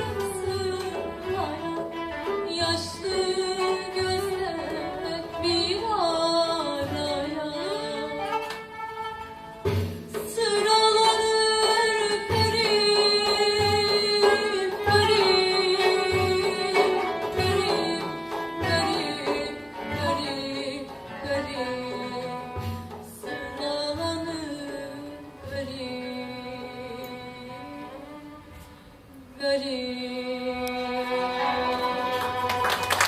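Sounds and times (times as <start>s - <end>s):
classical ensemble melody: 8.0s - 9.8s.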